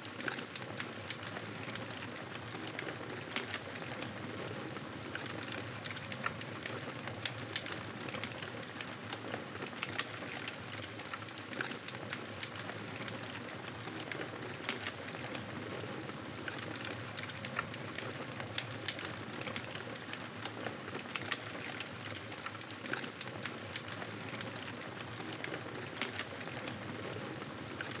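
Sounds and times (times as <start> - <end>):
campfire crackling and popping: 21.0 - 26.9.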